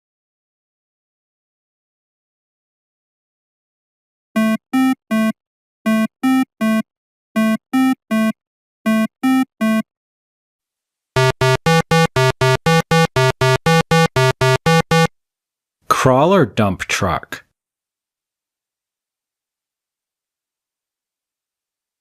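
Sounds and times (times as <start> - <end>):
synthesizer notes: 11.2 - 15.1.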